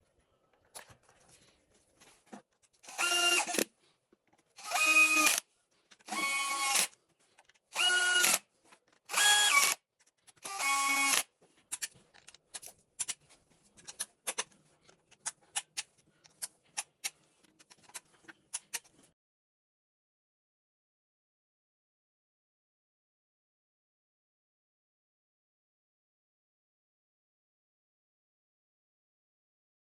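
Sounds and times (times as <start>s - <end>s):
power tool whirring: 2.8s - 3.7s, 4.6s - 5.4s, 6.0s - 6.9s, 7.7s - 8.4s, 9.1s - 9.8s, 10.4s - 11.3s.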